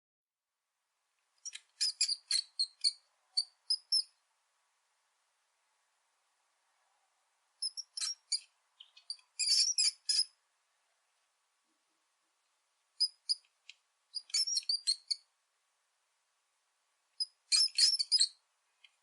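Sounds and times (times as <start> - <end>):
rat squeaking: 1.4 - 4.2, 7.6 - 10.4, 13.0 - 13.5, 14.1 - 15.3, 17.2 - 18.4.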